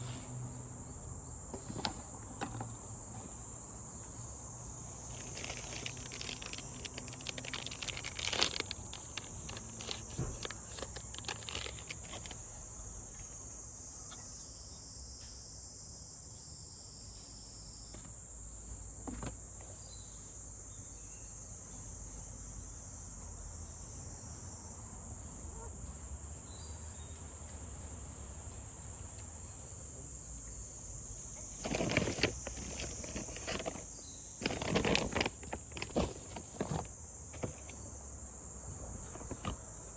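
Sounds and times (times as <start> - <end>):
insects chorus: 0.0 - 39.9
handling clicks and knocks: 5.1 - 12.4.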